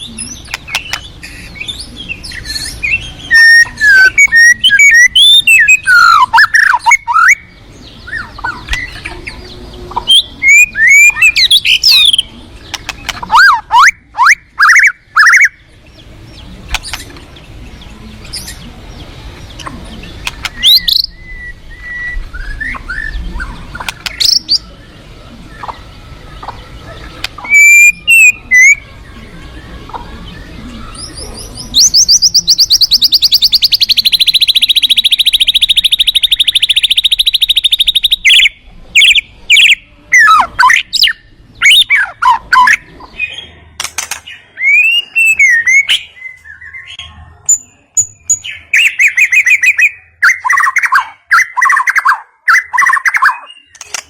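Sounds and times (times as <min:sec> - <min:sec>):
bird singing whistles: 0:02.4 - 0:07.5, 0:10.0 - 0:12.2, 0:20.4 - 0:23.2, 0:27.4 - 0:28.8, 0:30.9 - 0:42.8, 0:44.6 - 0:46.9
fast rattling bird trill: 0:26.4 - 0:28.8, 0:30.9 - 0:39.8.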